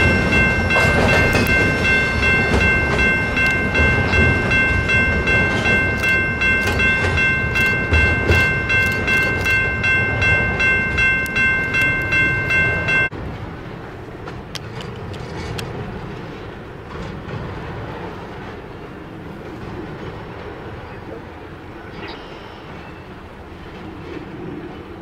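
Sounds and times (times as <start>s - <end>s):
high-pitched ringing tone: 0.0s - 13.1s
wheels clicking over rail joints: 0.0s - 13.1s, 14.2s - 17.9s
freight train rumble: 0.0s - 25.0s.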